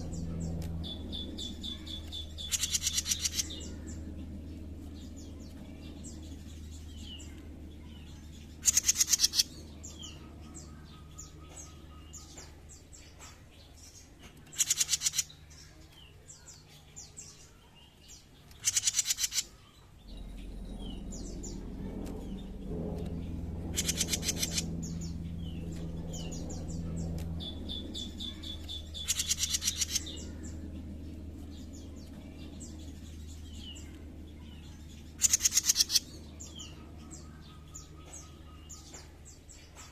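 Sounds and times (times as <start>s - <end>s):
low hum: 0.0s - 39.9s
soft bird chirps: 0.0s - 39.9s
songbird chattering rattle: 1.5s - 3.9s, 8.6s - 9.5s, 14.4s - 15.4s, 18.5s - 21.6s, 23.6s - 25.3s, 27.6s - 30.6s, 35.2s - 36.9s.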